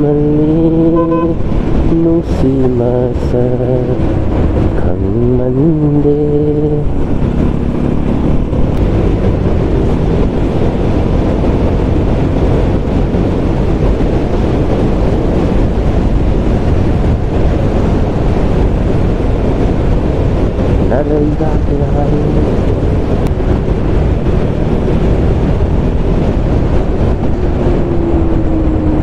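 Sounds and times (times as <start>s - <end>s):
faint motorcycle engine drone: 0.0s - 29.0s
wind rushing on microphone: 0.0s - 29.0s.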